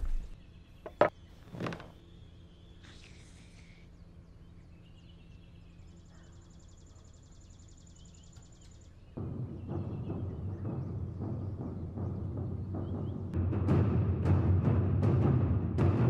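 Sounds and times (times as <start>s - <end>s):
faint birdsong: 0.0s - 13.4s
loud music with drums: 9.2s - 16.0s.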